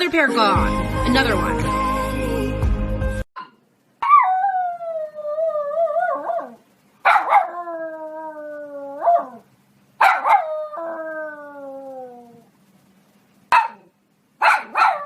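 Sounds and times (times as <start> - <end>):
dog howling: 4.0 - 9.4, 10.0 - 12.5.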